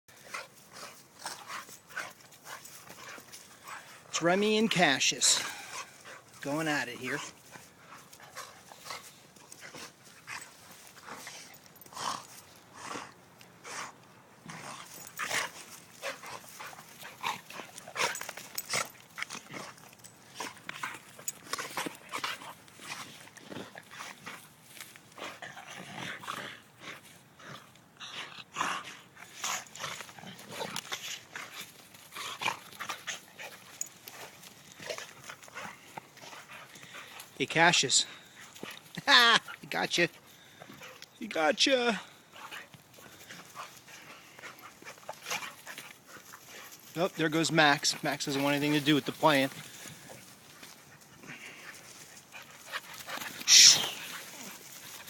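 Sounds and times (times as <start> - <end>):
dogs scuffling: 42.2 - 55.0
short dog vocalisations: 53.4 - 54.1.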